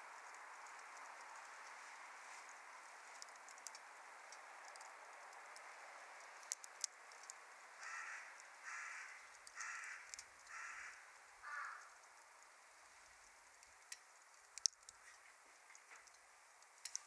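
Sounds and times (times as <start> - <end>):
wood fire crackling: 0.0 - 17.0
crow cawing: 7.8 - 12.0.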